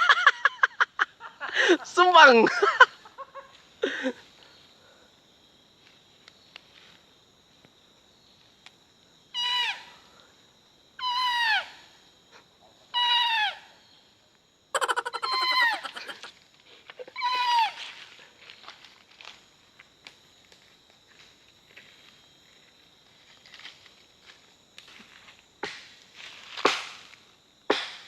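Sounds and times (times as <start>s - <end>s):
leaf whistle bleats: 14.8s - 16.3s, 17.2s - 18.0s.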